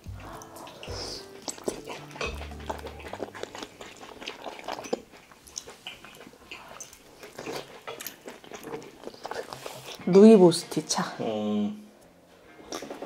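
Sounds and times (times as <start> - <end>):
biting and chewing: 0.0 - 10.3, 12.5 - 13.0
wet mouth clicks and smacks: 0.1 - 10.0.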